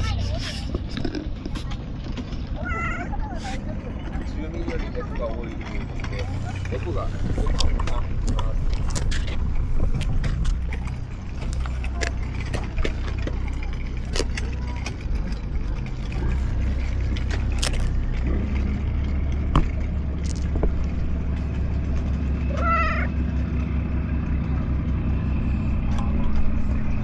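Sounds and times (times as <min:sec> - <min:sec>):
steady low hum: 0:00.0 - 0:27.0
cat meowing: 0:22.4 - 0:23.2.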